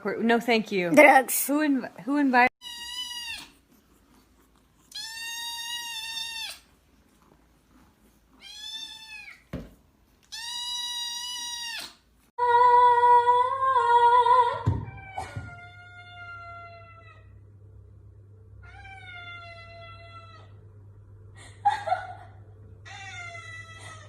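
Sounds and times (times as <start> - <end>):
cat meowing: 2.6 - 3.5, 4.9 - 6.7, 8.4 - 9.4, 10.3 - 12.0.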